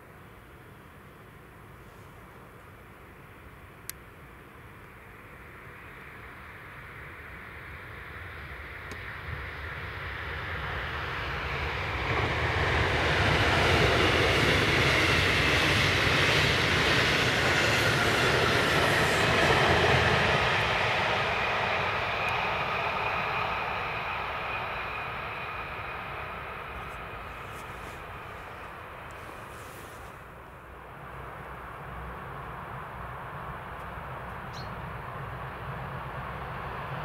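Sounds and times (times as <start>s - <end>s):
train wheels on rails: 10.2s - 30.4s.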